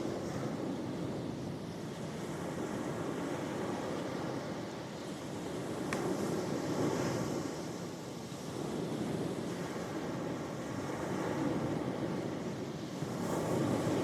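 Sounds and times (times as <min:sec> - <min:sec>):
ocean waves washing on shore: 0:00.0 - 0:14.0.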